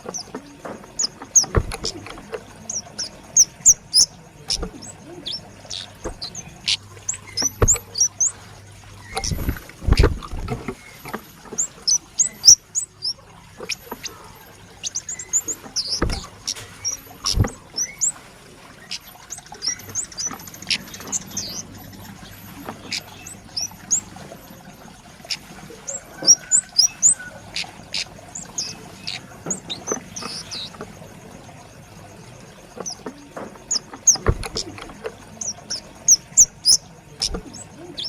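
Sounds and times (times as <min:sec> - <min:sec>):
dull thumps: 0:00.1 - 0:02.4, 0:05.7 - 0:08.2, 0:09.1 - 0:11.7, 0:15.5 - 0:17.7, 0:32.8 - 0:35.1.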